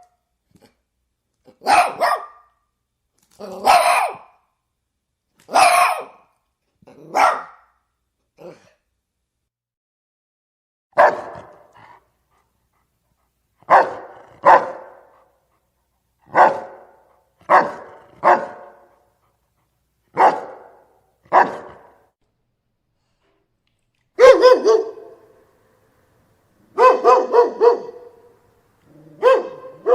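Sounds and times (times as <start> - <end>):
dog barking: 1.5 - 2.6, 3.5 - 4.4, 5.5 - 6.3, 7.0 - 7.8, 10.9 - 11.9, 13.6 - 15.3, 16.3 - 19.0, 20.1 - 22.1, 24.2 - 25.3, 26.7 - 29.9.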